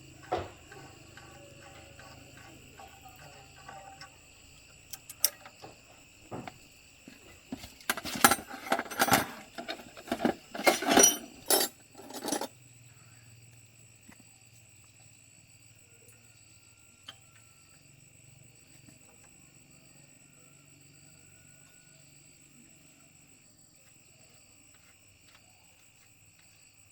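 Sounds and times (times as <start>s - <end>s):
insects droning: 0.0s - 26.9s
metal clinking and clattering: 4.9s - 6.6s, 7.5s - 12.5s.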